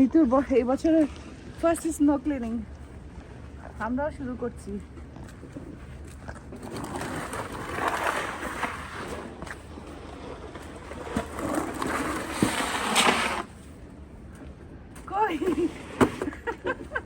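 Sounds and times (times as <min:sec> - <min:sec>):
snow shovels scraping pavement: 0:06.5 - 0:13.7.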